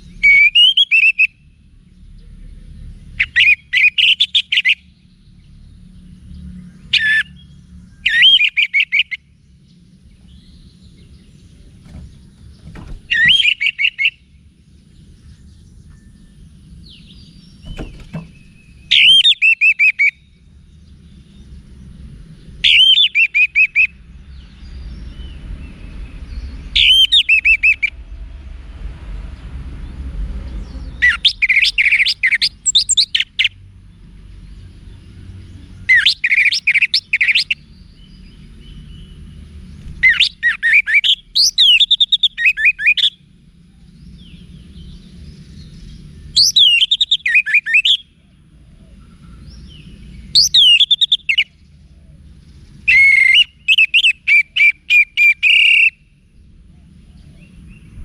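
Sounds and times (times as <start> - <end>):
thrush warbling whistled song: 0.0 - 1.5, 3.2 - 5.0, 6.8 - 9.3, 12.6 - 14.4, 16.8 - 20.4, 22.5 - 24.0, 26.6 - 28.0, 31.0 - 33.6, 35.9 - 37.7, 40.0 - 43.2, 46.2 - 48.1, 48.9 - 51.6, 52.8 - 56.2
faint low rumble: 1.3 - 3.8, 23.9 - 31.7, 56.0 - 58.0.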